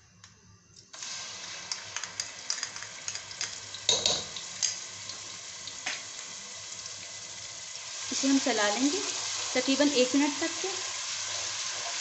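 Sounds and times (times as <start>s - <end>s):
oil crackles and pops: 0.8s - 7.0s
paste sizzling in hot oil: 0.9s - 12.0s.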